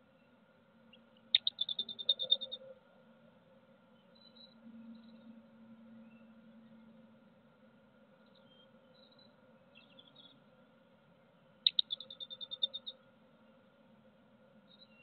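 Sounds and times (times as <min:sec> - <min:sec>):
songbird trill: 0:00.0 - 0:02.9, 0:03.9 - 0:07.1, 0:08.1 - 0:10.6, 0:11.2 - 0:13.6, 0:14.6 - 0:15.0
faint bird chirps: 0:00.1 - 0:02.9, 0:03.9 - 0:07.0, 0:08.2 - 0:10.5, 0:11.2 - 0:13.6, 0:14.6 - 0:15.0.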